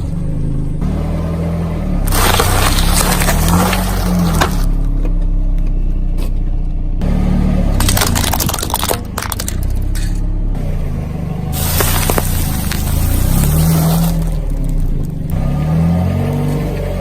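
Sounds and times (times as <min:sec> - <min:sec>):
car engine running: 0:00.0 - 0:17.0
objects crunching under car: 0:02.0 - 0:05.2, 0:07.7 - 0:10.2, 0:11.6 - 0:15.6.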